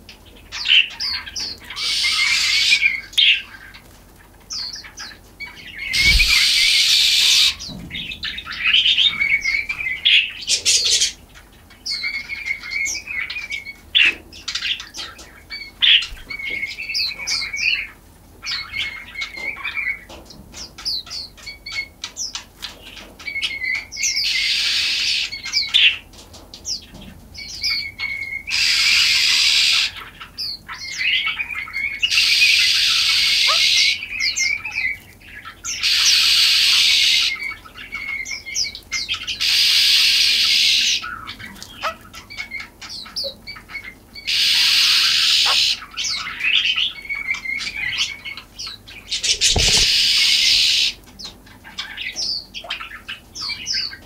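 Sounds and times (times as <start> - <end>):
small songbirds chirping: 0.0 - 54.0
wings fluttering: 5.9 - 8.2, 49.1 - 50.6.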